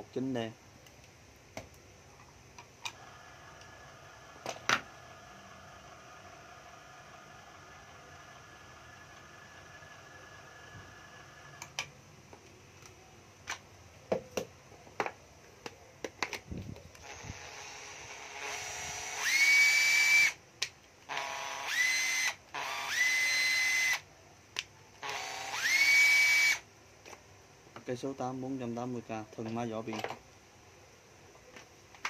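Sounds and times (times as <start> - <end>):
cordless drill motor whining: 2.9 - 11.7, 16.9 - 20.4, 21.1 - 24.1, 25.0 - 26.6.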